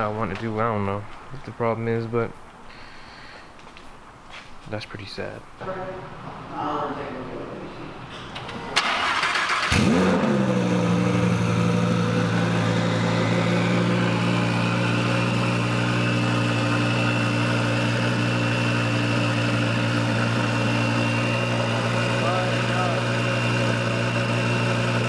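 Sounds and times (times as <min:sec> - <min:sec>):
car engine starting and idling: 0:08.1 - 0:25.0.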